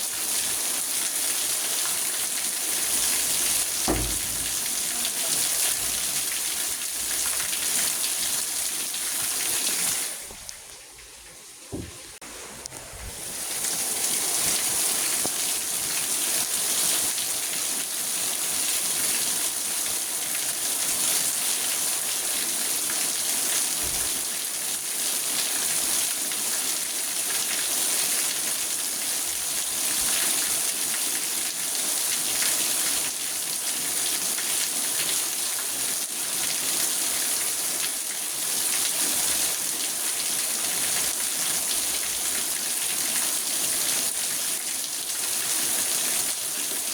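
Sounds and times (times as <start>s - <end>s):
rain on car roof: 2.8s - 15.6s.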